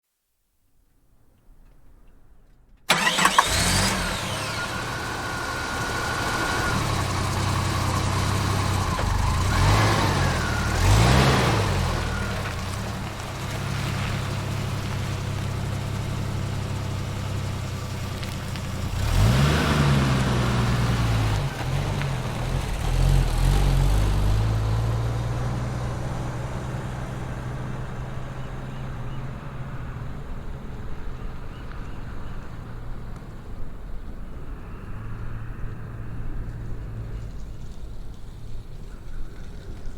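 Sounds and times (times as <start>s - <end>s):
car engine revving: 2.9s - 30.7s
car engine starting: 2.9s - 39.8s.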